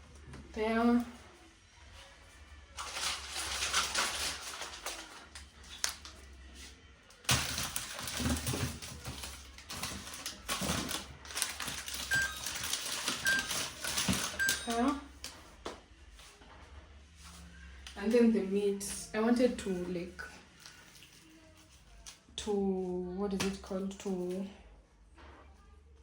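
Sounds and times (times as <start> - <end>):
food items clattering: 2.7 - 6.1, 7.2 - 15.0
plastic packaging rustling: 2.7 - 6.5, 7.2 - 15.0, 20.2 - 21.7.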